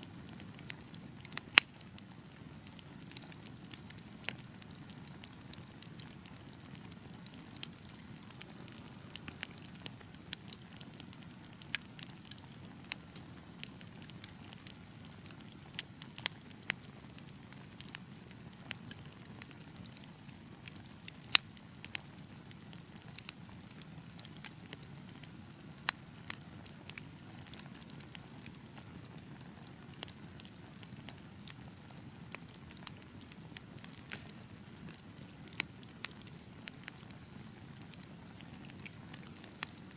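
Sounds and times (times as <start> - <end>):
fire crackling: 0.0 - 39.9
low rumble of flames: 0.1 - 39.9.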